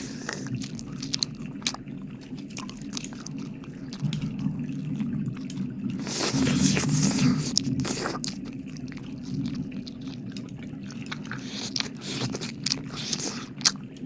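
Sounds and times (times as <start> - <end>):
wet mouth licking and smacking: 0.0 - 13.8.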